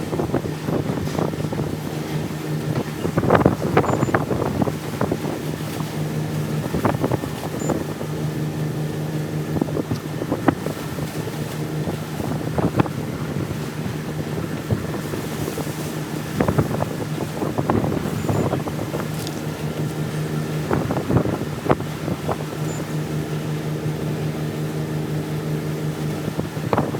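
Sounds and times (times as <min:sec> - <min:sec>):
mechanical drone with low hum: 0:00.0 - 0:26.9.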